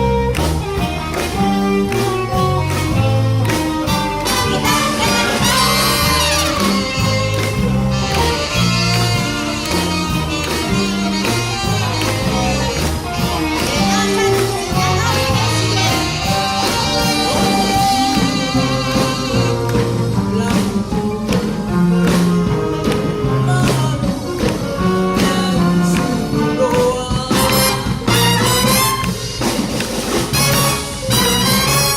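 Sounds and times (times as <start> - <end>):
drums keeping a steady beat: 0.0 - 31.9
walking bass line: 0.0 - 31.9
horn and wind melodies: 3.9 - 20.1, 27.4 - 29.7, 30.3 - 31.9.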